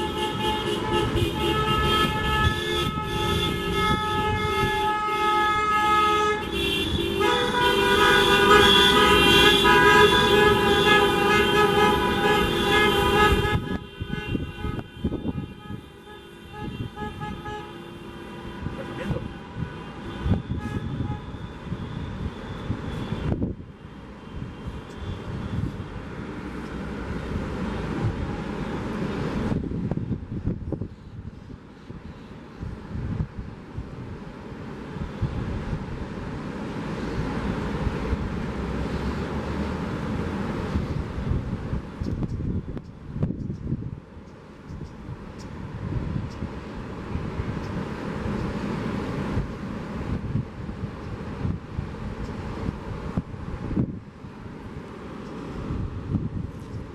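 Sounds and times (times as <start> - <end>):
wind buffeting microphone: 0.0 - 5.8, 6.4 - 17.7, 18.4 - 56.9
vehicle horn long blast: 0.0 - 23.4
passing traffic: 0.0 - 56.9.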